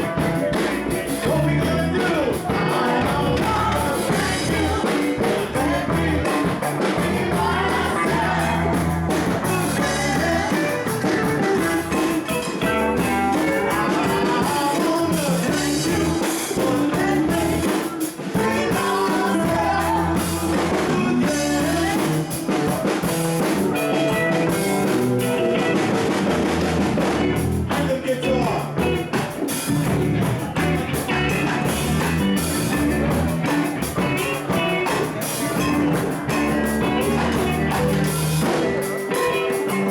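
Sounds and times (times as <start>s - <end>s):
person singing: 0.0s - 23.1s, 33.4s - 39.9s
rock band playing: 0.0s - 39.9s.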